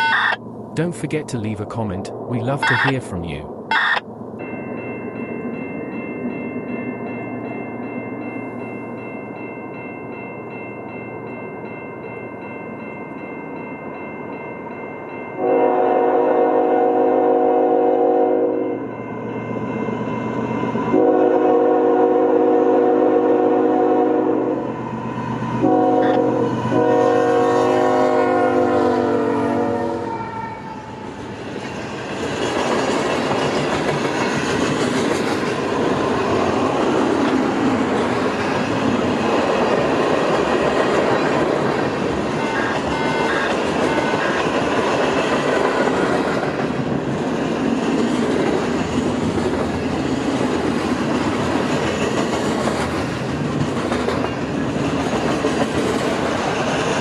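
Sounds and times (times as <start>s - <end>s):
locomotive air horn: 15.4s - 18.6s, 20.9s - 24.6s, 25.6s - 30.8s, 42.4s - 44.4s
train wheels rumbling on rails: 19.2s - 57.0s.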